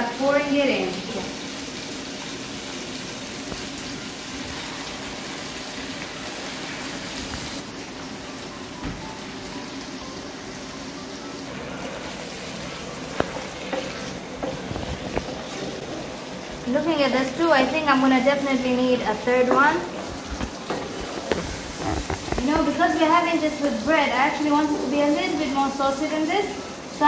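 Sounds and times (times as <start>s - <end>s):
chicken sizzling in hot oil: 0.0s - 27.0s
wooden spatula knocking on pot: 19.4s - 22.6s.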